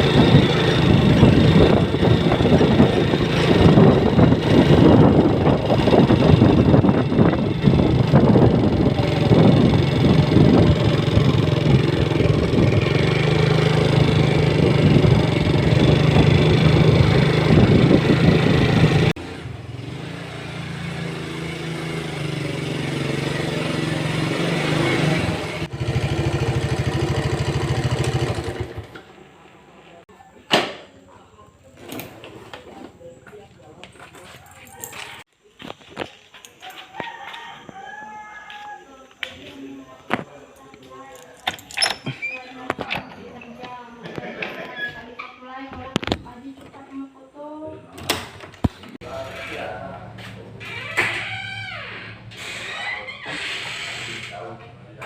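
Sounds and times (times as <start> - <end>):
vehicle engine running: 0.0 - 29.2.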